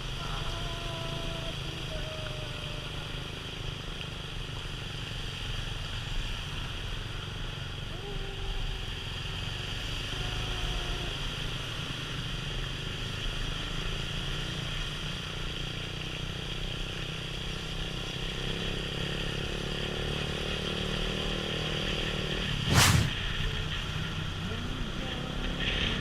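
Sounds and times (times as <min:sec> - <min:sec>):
road and wind noise: 0:00.0 - 0:26.0.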